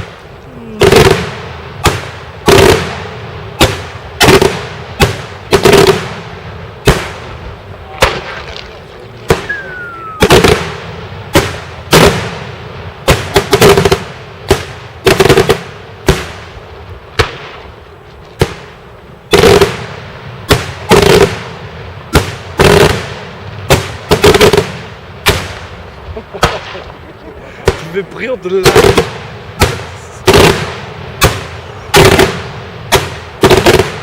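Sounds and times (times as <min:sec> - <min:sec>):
fireworks bangs: 0:00.0 - 0:34.0
short falling whistle: 0:09.4 - 0:10.3.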